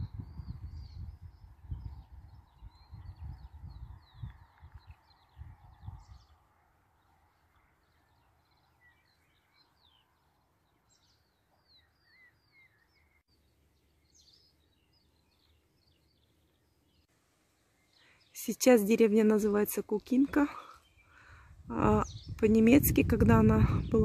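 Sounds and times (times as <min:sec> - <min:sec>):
low rumbling on microphone: 0:00.0 - 0:06.3, 0:21.3 - 0:24.0
small birds chirping: 0:00.0 - 0:24.0.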